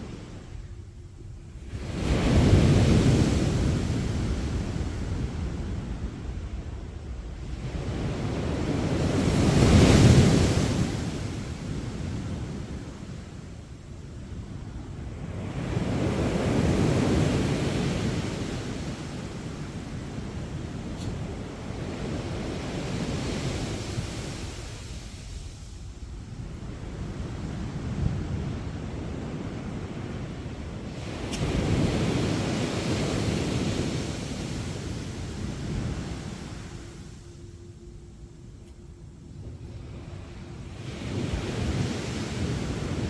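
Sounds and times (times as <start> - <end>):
low rumble of surf: 0.0 - 43.0
sea waves breaking: 1.6 - 13.8, 15.2 - 25.9, 26.5 - 37.7.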